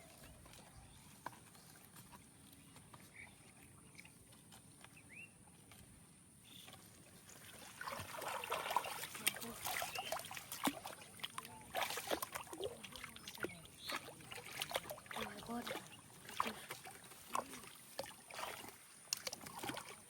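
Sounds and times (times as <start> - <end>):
water splashing and sloshing: 0.0 - 20.0
quick clicks and drips: 6.6 - 20.0.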